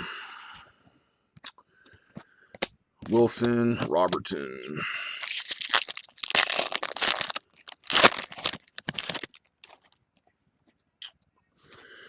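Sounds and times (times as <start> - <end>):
foil wrapper crinkling: 5.2 - 10.0.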